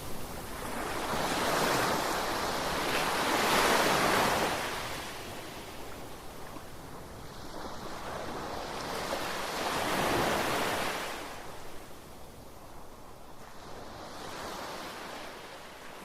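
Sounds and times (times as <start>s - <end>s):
sea waves washing onto shore: 0.0s - 12.0s.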